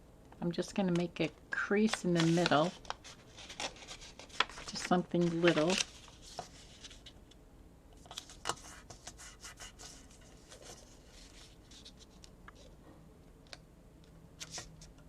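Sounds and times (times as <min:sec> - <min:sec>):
paper being folded and creased: 0:01.8 - 0:07.2, 0:08.0 - 0:12.7.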